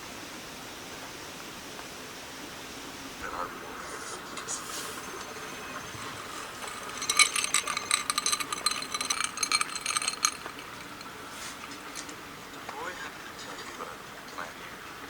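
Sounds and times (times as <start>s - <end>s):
rapid light metal clinking: 4.4s - 12.4s.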